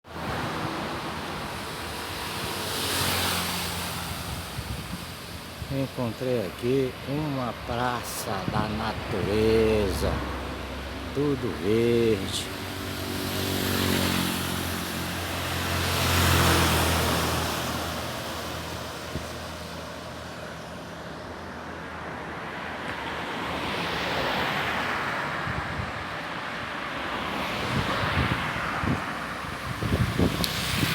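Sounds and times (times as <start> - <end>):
car passing by: 0.1 - 6.0, 6.6 - 30.9
wind buffeting microphone: 4.0 - 6.0, 25.4 - 26.3, 27.5 - 30.9.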